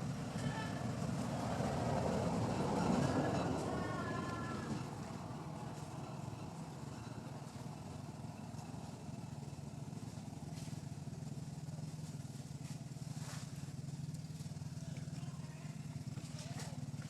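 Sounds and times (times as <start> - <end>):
motor engine humming: 0.0 - 17.0.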